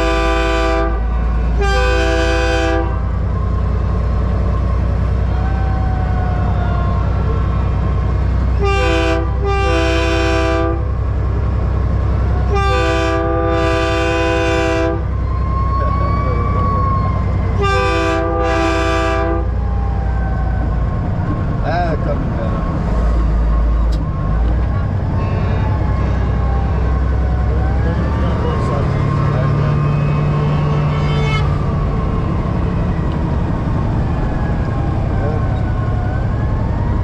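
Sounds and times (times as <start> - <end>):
truck air horn blasts: 0.0 - 3.1, 8.6 - 10.9, 12.5 - 15.1, 17.6 - 19.6, 29.5 - 31.6
diesel truck engine rumble: 0.0 - 37.0.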